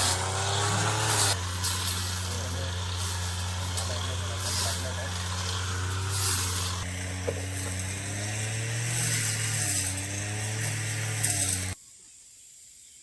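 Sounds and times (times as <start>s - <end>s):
hiss: 0.0s - 7.9s
small engine running: 0.0s - 11.8s.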